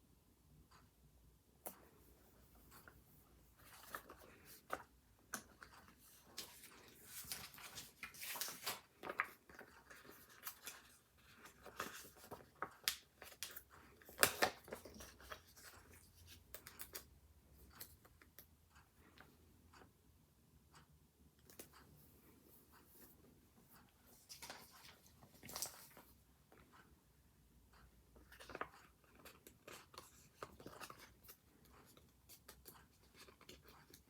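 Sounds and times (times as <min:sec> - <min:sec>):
paper rustling: 0:05.6 - 0:15.8, 0:24.1 - 0:26.2.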